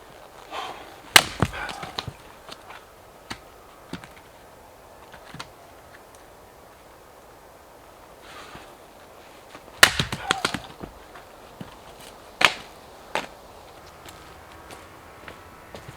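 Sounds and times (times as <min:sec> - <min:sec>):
axe chopping firewood: 0:00.6 - 0:02.6, 0:09.8 - 0:11.8, 0:12.4 - 0:13.3.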